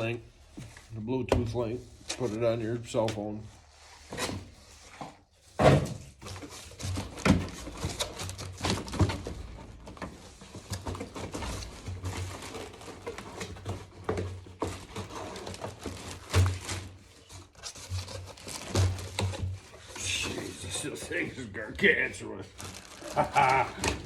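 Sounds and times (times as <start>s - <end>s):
cardboard packaging rubbing and crinkling: 0.0s - 24.0s
box thump: 5.6s - 6.1s.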